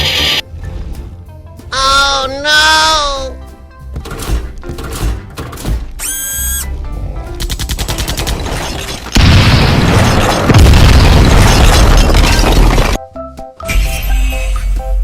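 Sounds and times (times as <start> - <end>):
music: 0.0 - 9.2, 12.6 - 15.0
explosion boom rumbling: 9.2 - 13.0.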